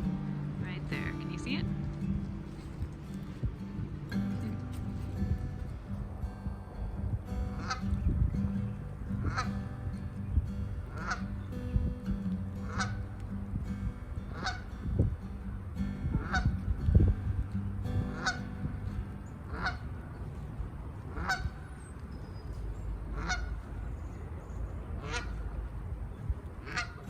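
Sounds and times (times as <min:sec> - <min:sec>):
goose honking: 0:10.9 - 0:11.2, 0:12.6 - 0:13.0, 0:18.2 - 0:18.4, 0:19.5 - 0:19.8, 0:21.1 - 0:21.6, 0:23.2 - 0:23.5, 0:25.0 - 0:25.3, 0:26.6 - 0:27.0.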